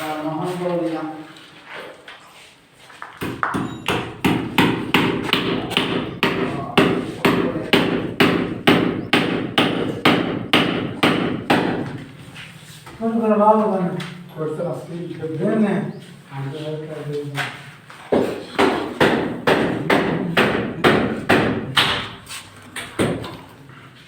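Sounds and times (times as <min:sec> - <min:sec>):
rapid hammering: 0:03.2 - 0:12.0, 0:18.6 - 0:22.2.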